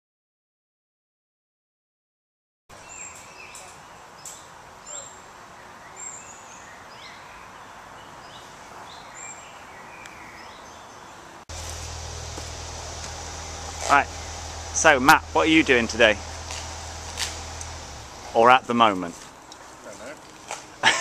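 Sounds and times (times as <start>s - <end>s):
birds chirping and singing: 2.8s - 18.5s
outdoor hiss: 11.4s - 21.0s.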